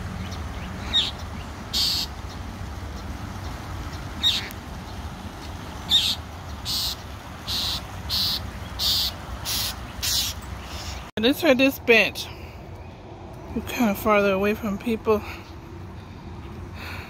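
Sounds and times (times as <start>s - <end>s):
birds chirping sharply: 0.1s - 11.1s
harsh raspy bird calls: 0.6s - 2.2s, 4.2s - 4.5s, 5.8s - 11.1s.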